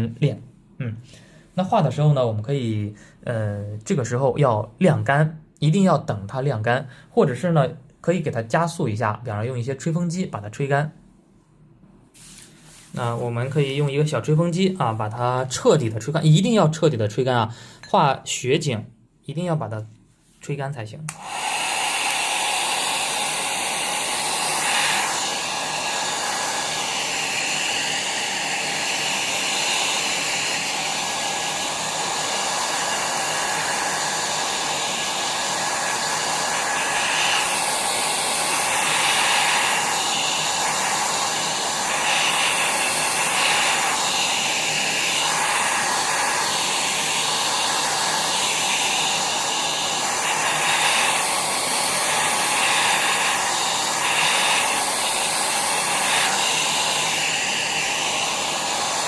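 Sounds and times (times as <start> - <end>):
hair dryer blowing: 12.2 - 13.9, 21.1 - 59.0.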